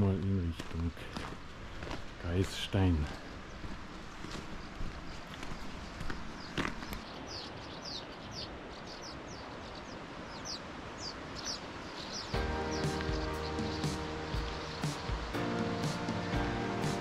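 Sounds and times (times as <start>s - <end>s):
steady outdoor hiss: 0.0s - 17.0s
small bird chirping: 3.3s - 17.0s
background music: 12.3s - 17.0s.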